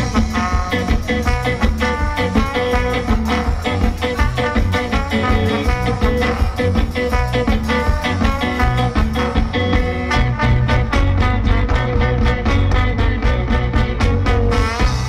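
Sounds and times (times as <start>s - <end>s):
drums and cymbal hits: 0.0s - 15.0s
live band playing: 0.0s - 15.0s.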